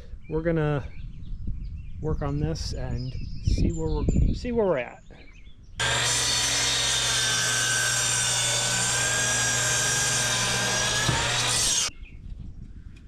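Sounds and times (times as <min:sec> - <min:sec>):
power tool humming: 0:05.8 - 0:11.9.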